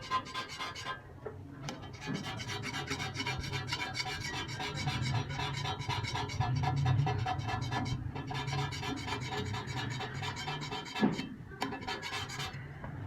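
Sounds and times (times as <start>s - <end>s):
cutting tool scraping metal: 0.0s - 1.0s, 1.7s - 12.6s.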